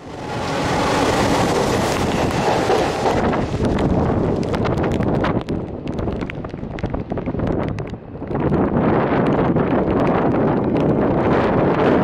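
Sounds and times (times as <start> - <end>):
train wheels rushing on rail: 0.0 - 8.0
wind buffeting microphone: 0.0 - 12.0.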